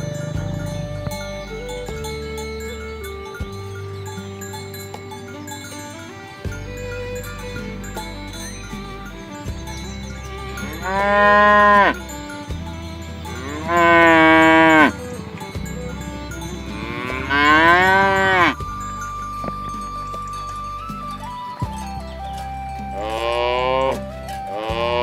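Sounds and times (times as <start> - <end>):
cows mooing: 10.4 - 12.4, 13.1 - 18.6, 23.0 - 25.0.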